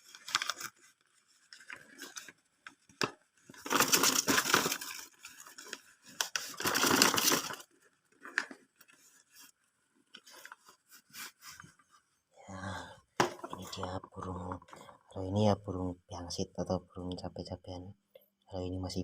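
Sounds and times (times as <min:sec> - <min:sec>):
packaging ripping: 0:00.0 - 0:00.9, 0:03.0 - 0:08.6.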